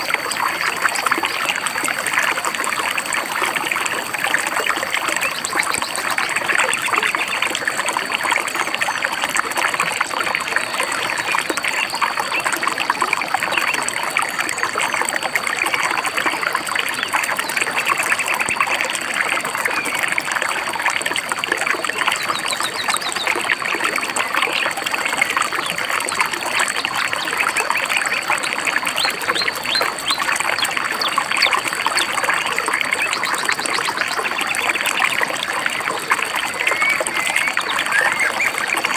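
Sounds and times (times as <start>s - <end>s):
stream babbling over rocks: 0.0s - 38.9s
birds chirping: 29.0s - 38.9s.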